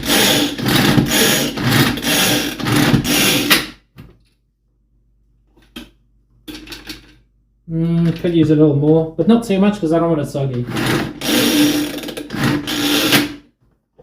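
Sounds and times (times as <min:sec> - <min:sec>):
pull-cord food chopper whirring: 0:00.0 - 0:03.7, 0:10.7 - 0:13.4.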